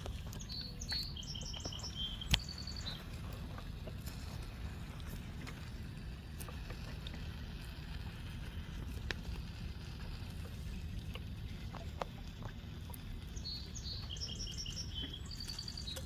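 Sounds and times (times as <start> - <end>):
bird chirping: 0.0 - 3.1, 13.4 - 16.0
pool pump humming: 0.0 - 16.0.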